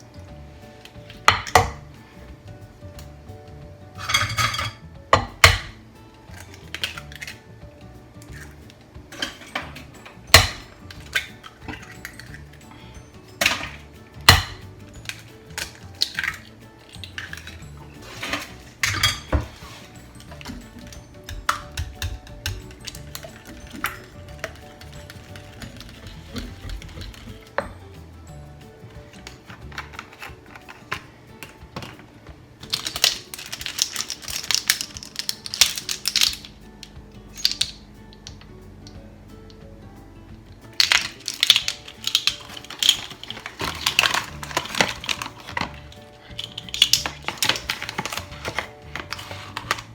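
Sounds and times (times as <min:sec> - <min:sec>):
background music: 0:00.0 - 0:49.9
utensils clinking against mixing bowl: 0:04.0 - 0:07.4, 0:08.2 - 0:27.8, 0:32.6 - 0:36.5, 0:40.7 - 0:49.9.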